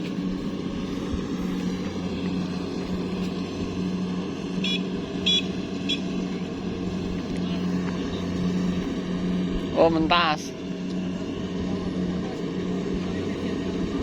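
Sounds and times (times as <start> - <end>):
diesel tractor engine running: 0.0 - 14.0.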